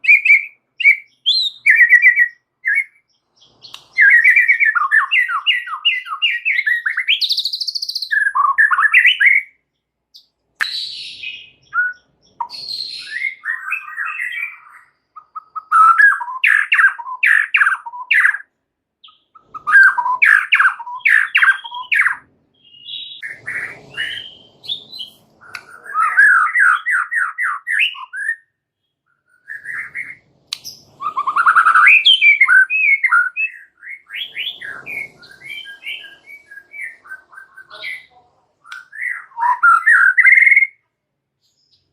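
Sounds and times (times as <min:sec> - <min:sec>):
songbird singing varied phrases: 0:00.0 - 0:41.9.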